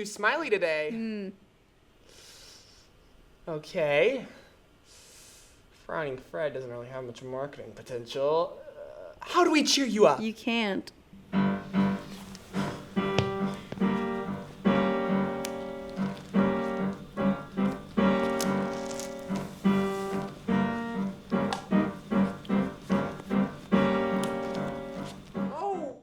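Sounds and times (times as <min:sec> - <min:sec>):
piano music: 0:11.3 - 0:25.6.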